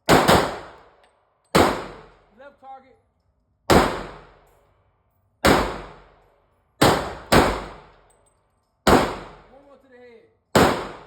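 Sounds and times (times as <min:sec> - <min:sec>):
pistol shots: 0:00.0 - 0:00.9, 0:01.5 - 0:02.2, 0:03.7 - 0:04.4, 0:05.4 - 0:06.2, 0:06.8 - 0:08.0, 0:08.8 - 0:09.5, 0:10.5 - 0:11.0.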